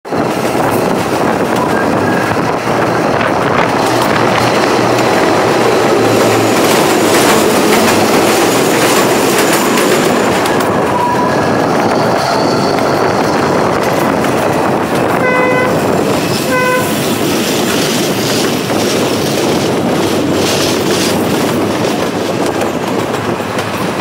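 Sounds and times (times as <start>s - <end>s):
train carriages rumbling: 0.1s - 24.0s
wheel clatter on rails: 0.1s - 24.0s.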